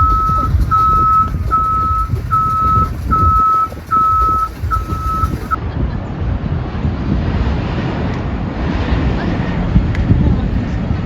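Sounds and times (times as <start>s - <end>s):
vehicle back-up alarm beeping: 0.0s - 5.6s
low rumbling background noise: 0.0s - 11.0s.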